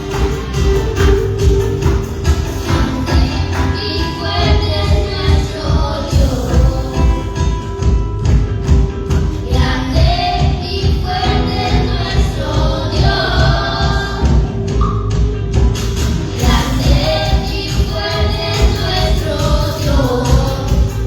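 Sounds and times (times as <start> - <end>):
band playing worship music: 0.0 - 21.0
voices singing: 2.6 - 7.8, 9.4 - 14.8, 16.4 - 21.0.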